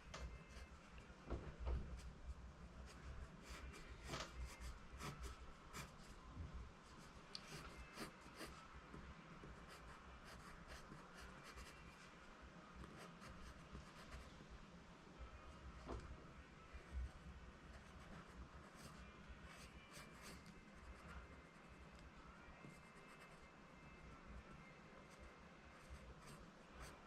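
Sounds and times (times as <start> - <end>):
pencil scratching on paper: 2.9 - 6.1, 7.4 - 8.6, 9.5 - 11.8, 17.7 - 21.6.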